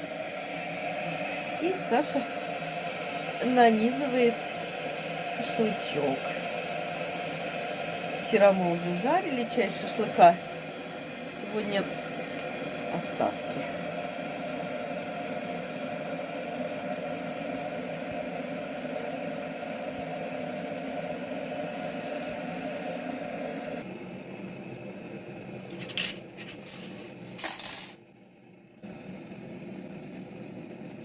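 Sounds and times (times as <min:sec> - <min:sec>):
electric kettle heating: 0:00.0 - 0:31.0
crockery clinking: 0:25.8 - 0:28.0.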